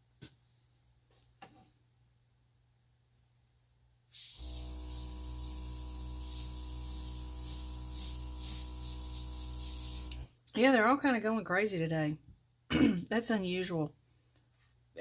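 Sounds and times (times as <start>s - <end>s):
compressed air hissing: 4.1s - 10.2s
airbrush compressor humming: 4.2s - 10.3s.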